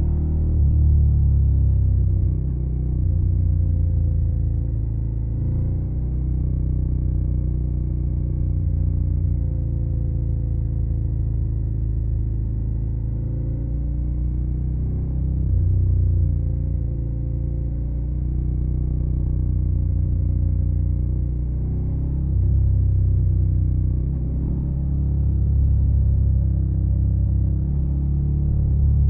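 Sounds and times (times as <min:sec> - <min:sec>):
motorcycle engine running: 0:14.4 - 0:29.0.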